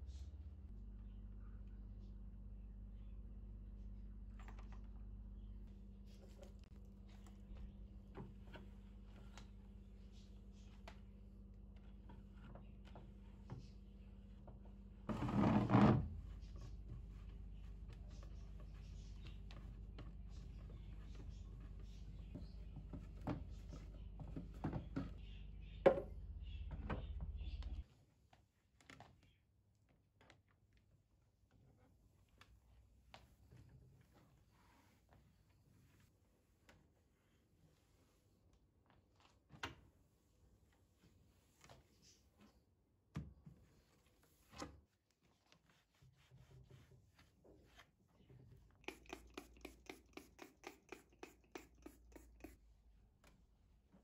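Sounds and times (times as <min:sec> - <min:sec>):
low steady hum: 0:00.0 - 0:27.8
short scrubbing strokes: 0:48.8 - 0:52.6.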